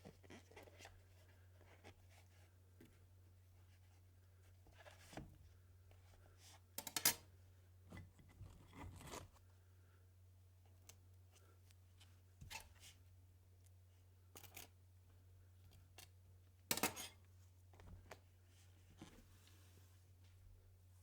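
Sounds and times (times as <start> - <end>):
faint low hum: 0.0 - 21.0
metal spatulas scraping plate: 16.7 - 17.2.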